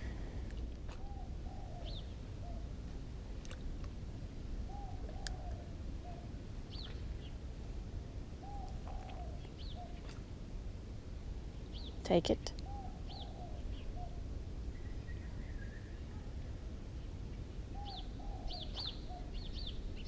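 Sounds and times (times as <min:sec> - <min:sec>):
dove cooing: 0:04.7 - 0:06.2, 0:08.4 - 0:10.0.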